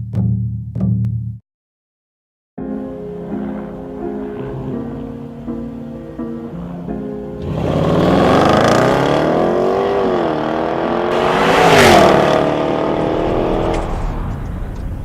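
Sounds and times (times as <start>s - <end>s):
car engine accelerating hard: 3.2s - 5.7s, 6.3s - 15.0s
rush of air noise: 11.1s - 15.0s.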